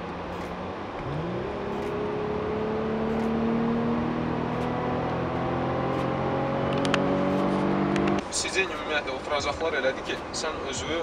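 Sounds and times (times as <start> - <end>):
car engine accelerating: 0.0 - 8.3.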